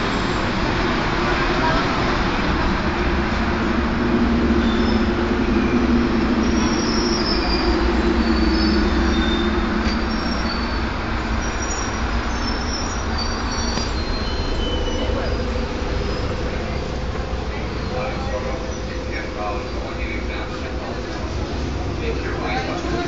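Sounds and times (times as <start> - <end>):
subway train rumbling on rails: 0.0 - 23.0
high-pitched wheel squeals: 4.3 - 17.0.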